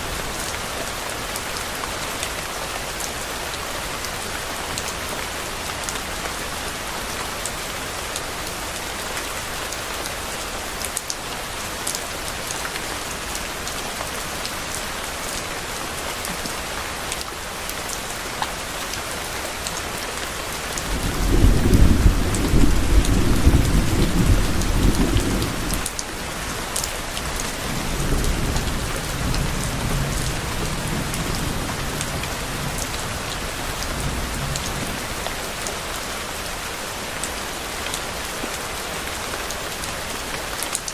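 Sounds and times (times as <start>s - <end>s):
steady rain hiss: 0.0s - 40.9s
low thunder rumble: 20.9s - 25.8s.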